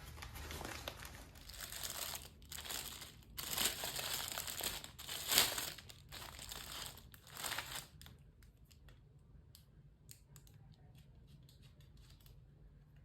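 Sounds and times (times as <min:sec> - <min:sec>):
crinkling and rustling: 0:00.0 - 0:09.0.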